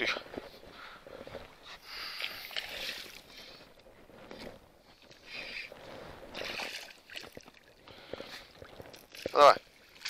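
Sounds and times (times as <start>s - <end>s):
water splashing against boat: 4.9s - 10.0s.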